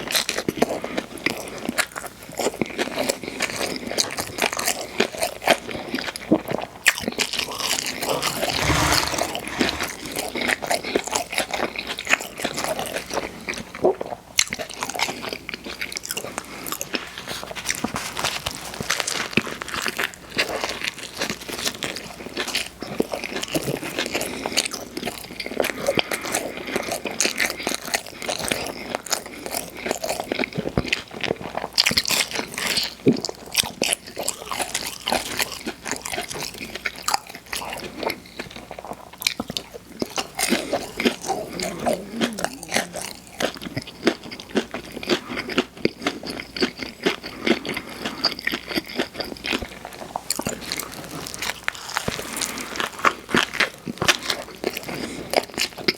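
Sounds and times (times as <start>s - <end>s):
chewing with crunchy bites: 8.1s - 9.9s, 28.4s - 55.9s.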